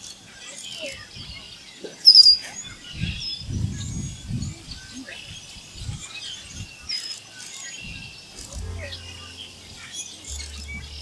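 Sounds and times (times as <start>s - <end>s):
small birds chirping: 0.0s - 11.0s
low muffled rumbles: 8.4s - 11.0s.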